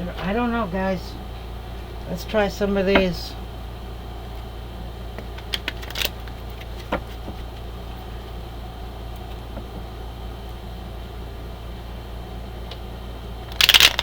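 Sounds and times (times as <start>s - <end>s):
steady low hum: 0.0s - 14.0s
cards clicking and tapping: 5.2s - 7.6s.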